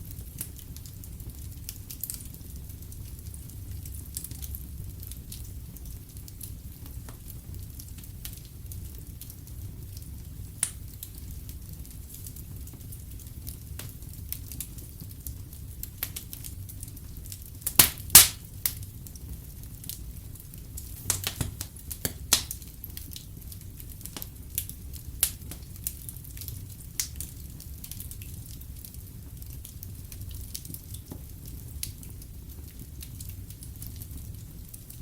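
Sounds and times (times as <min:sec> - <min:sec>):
fire crackling: 0:00.0 - 0:35.0
sharp pops of fire: 0:17.6 - 0:18.9, 0:20.7 - 0:28.3.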